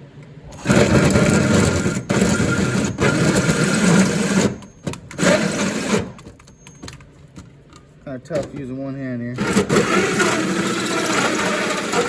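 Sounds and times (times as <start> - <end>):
drill hole saw cutting metal: 0.6 - 6.2, 9.4 - 12.0.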